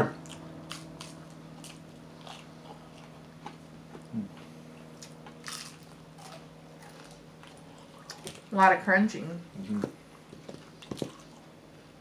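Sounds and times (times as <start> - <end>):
crunching food: 0.1 - 4.2, 4.8 - 8.5.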